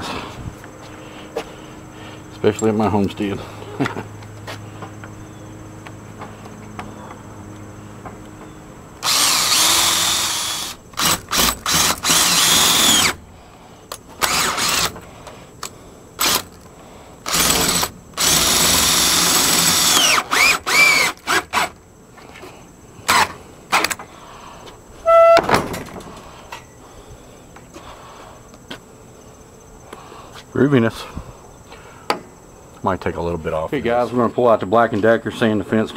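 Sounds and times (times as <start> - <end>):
power drill whining: 9.0 - 13.2, 14.2 - 15.0, 17.2 - 21.8.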